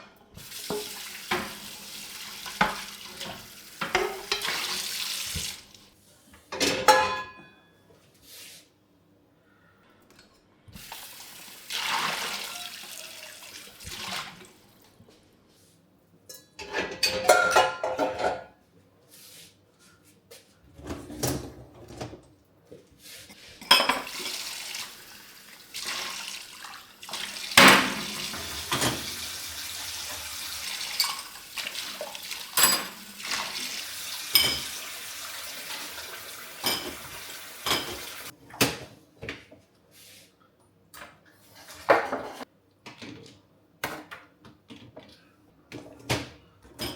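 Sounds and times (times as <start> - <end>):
tap running: 0.4 - 5.7, 23.9 - 38.3
dishes and cutlery clinking: 2.5 - 4.6, 6.5 - 7.8, 16.3 - 18.6, 23.6 - 24.3, 30.8 - 33.3, 34.3 - 35.0, 36.6 - 38.8.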